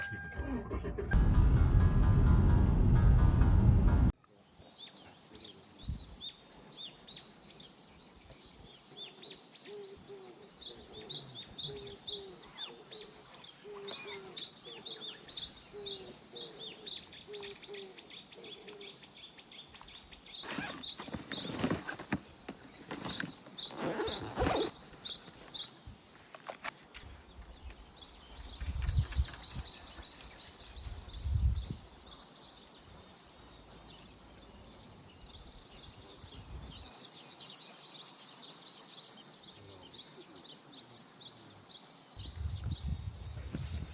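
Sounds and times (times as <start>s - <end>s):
low thumps: 0.0s - 4.1s
outdoor background noise: 0.0s - 43.9s
small birds chirping: 4.3s - 43.9s.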